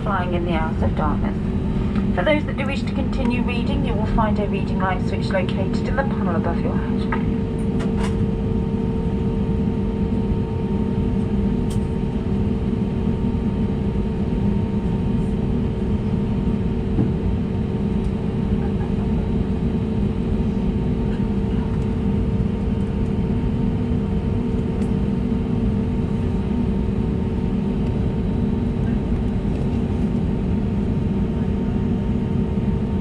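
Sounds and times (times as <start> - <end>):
steady tones: 0.0 - 7.4
aircraft cabin hum: 0.0 - 33.0.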